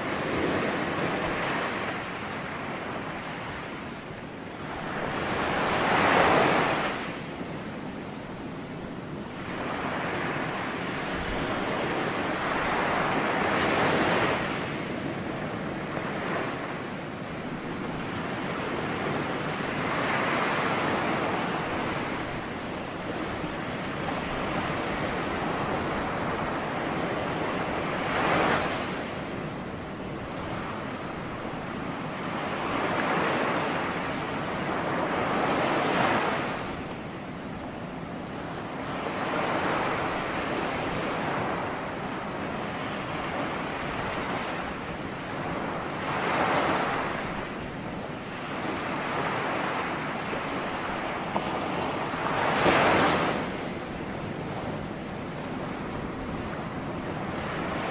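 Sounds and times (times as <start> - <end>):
ocean waves breaking on shore: 0.0 - 57.9.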